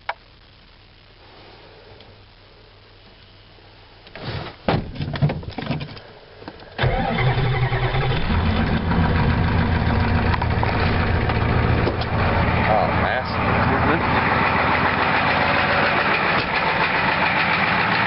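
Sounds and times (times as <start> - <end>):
diesel engine cranking and idling: 6.8 - 18.0.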